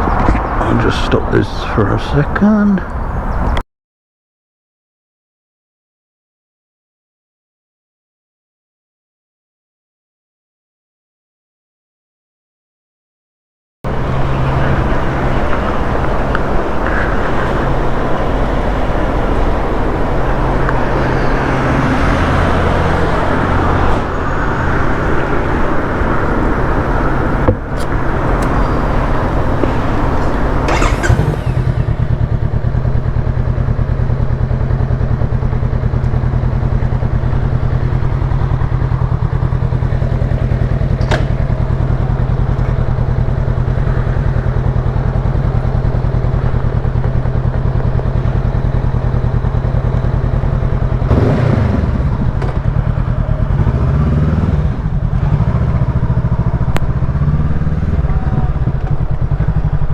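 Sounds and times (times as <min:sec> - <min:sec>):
loud rushing noise: 0:13.9 - 0:32.8
motorcycle engine idling: 0:13.9 - 0:53.8, 0:54.7 - 0:59.9.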